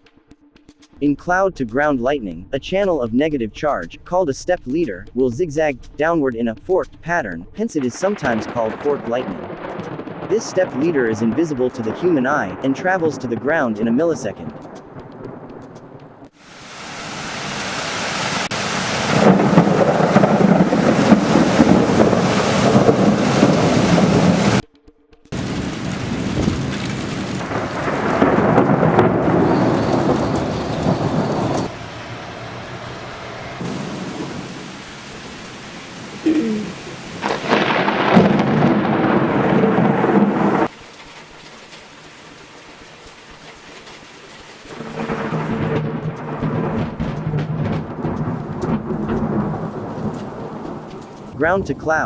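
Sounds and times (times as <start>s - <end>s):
thunder rumble: 8.0s - 24.6s, 25.4s - 40.7s, 44.7s - 51.8s
rain hiss: 16.3s - 24.6s, 25.4s - 51.4s.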